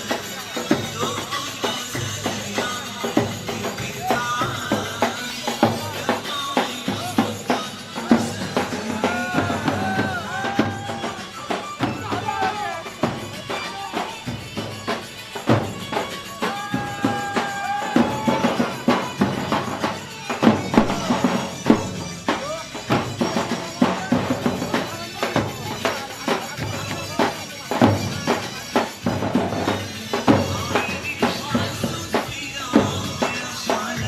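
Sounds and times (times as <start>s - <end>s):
drum beating driving strokes: 0.0s - 34.0s.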